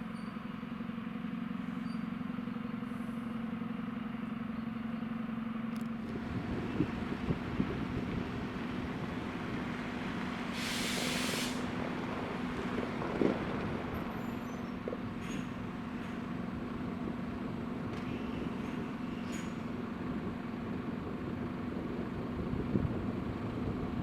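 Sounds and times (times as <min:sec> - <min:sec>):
diesel train engine idling: 0:00.0 - 0:24.0
air brake hiss: 0:10.5 - 0:11.7.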